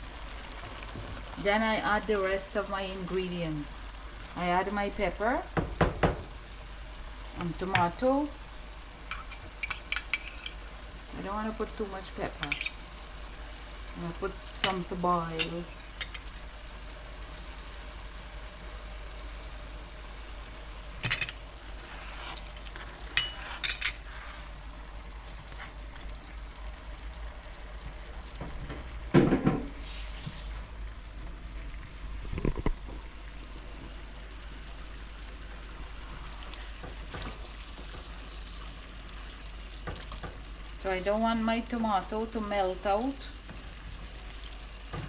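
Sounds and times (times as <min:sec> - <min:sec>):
vegetables sizzling in a pot: 0:00.0 - 0:45.0
spoon knocking and scraping pot: 0:09.1 - 0:10.6, 0:12.4 - 0:12.8, 0:21.0 - 0:21.4, 0:23.2 - 0:24.0.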